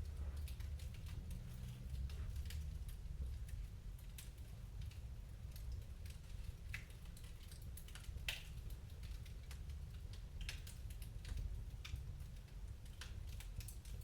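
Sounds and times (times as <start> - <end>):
fireplace fire crackling: 0.0 - 14.0.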